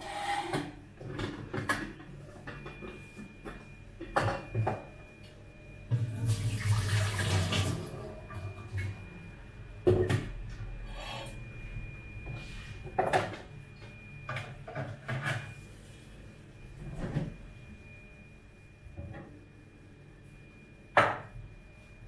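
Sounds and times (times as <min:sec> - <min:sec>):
faint high whine: 0:02.3 - 0:22.0.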